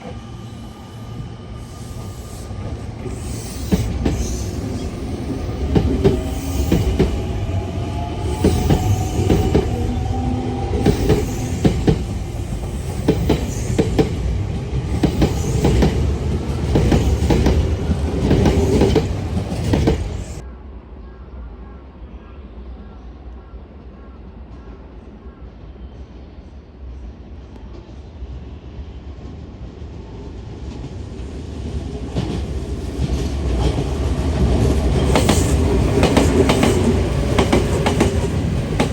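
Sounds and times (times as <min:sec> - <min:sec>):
train wheels knocking on rail joints: 0:08.2 - 0:12.2, 0:13.0 - 0:20.2, 0:32.2 - 0:38.9.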